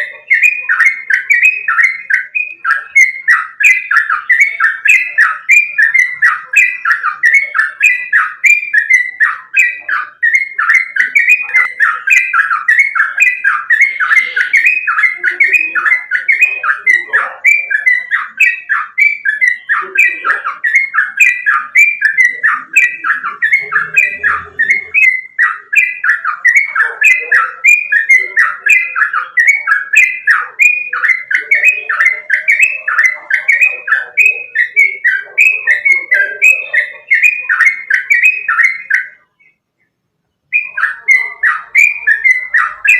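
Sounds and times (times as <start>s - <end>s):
bulbul singing: 0.0s - 42.9s.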